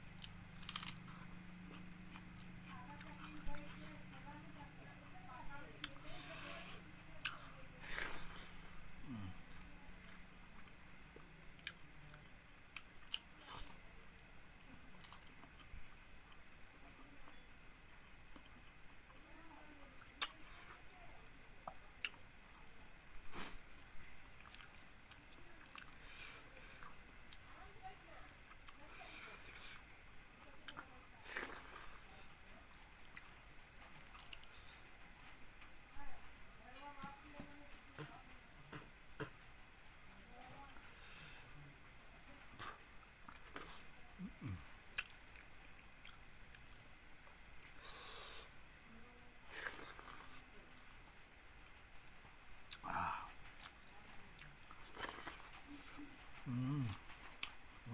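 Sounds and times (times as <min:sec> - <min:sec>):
person chewing food: 0:00.0 - 0:04.0, 0:05.8 - 0:13.9, 0:15.0 - 0:16.4, 0:20.2 - 0:20.8, 0:21.6 - 0:22.2, 0:24.1 - 0:27.4, 0:30.6 - 0:32.1, 0:33.1 - 0:35.3, 0:42.6 - 0:48.4, 0:49.5 - 0:50.9, 0:52.6 - 0:55.6, 0:56.2 - 0:57.7
insect chirring: 0:00.0 - 0:57.9.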